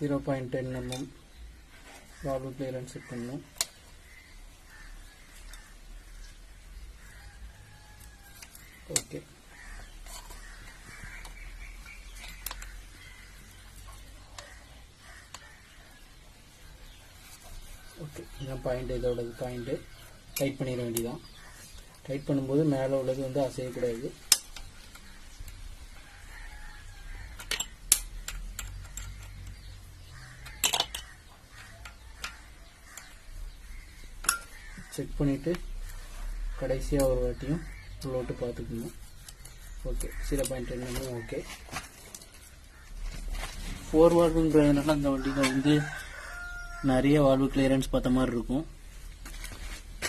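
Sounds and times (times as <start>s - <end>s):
spanner clicking on metal: 27.4s - 29.6s.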